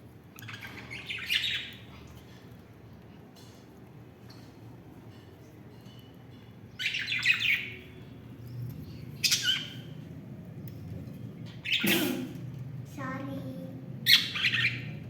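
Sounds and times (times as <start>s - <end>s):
budgerigars chirping: 6.8s - 7.8s, 9.2s - 9.9s, 11.5s - 12.2s, 14.1s - 15.0s.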